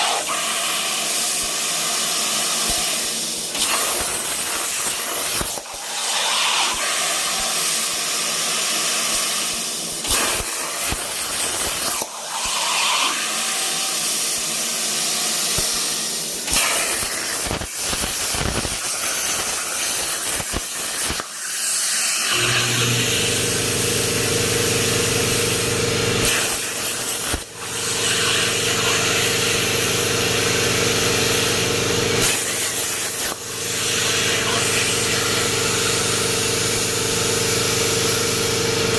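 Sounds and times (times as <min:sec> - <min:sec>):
plasma torch hissing: 0:00.0 - 0:23.6, 0:24.6 - 0:31.6, 0:32.2 - 0:38.6.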